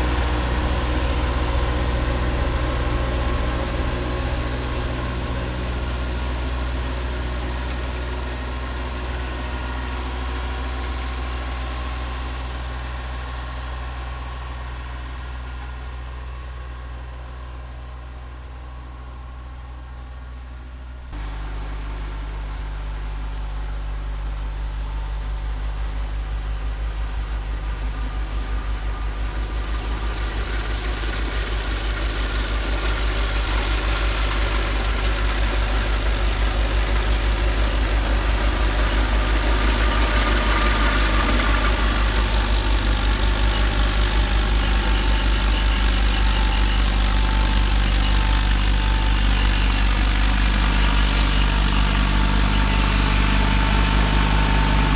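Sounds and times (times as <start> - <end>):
diesel tractor engine running: 0.0 - 54.9
snowblower hiss: 29.2 - 54.9.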